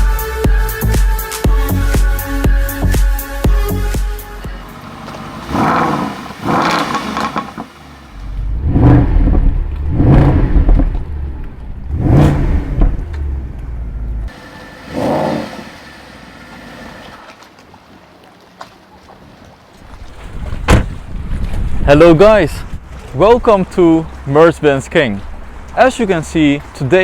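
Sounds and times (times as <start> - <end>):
car engine revving: 4.4 - 17.2.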